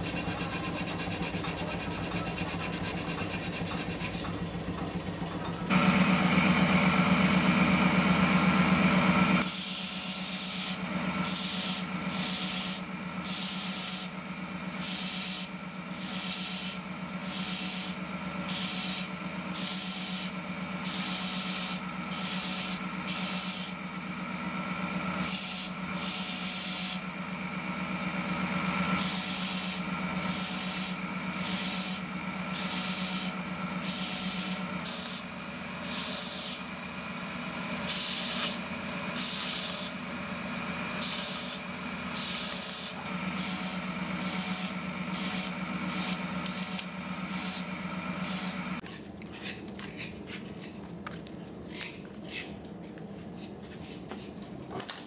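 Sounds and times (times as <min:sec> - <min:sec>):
belt sander motor hum: 0:05.1 - 0:48.8.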